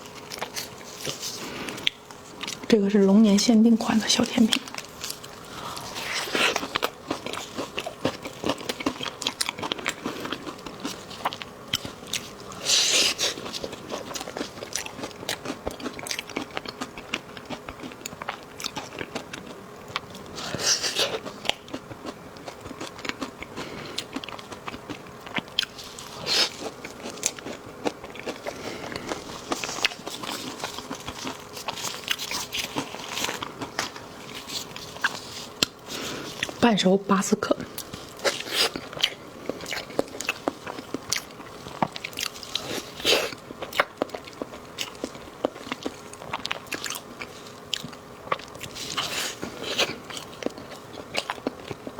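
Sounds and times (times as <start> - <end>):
person chewing: 0.0 - 2.7, 4.3 - 36.6, 37.6 - 51.9.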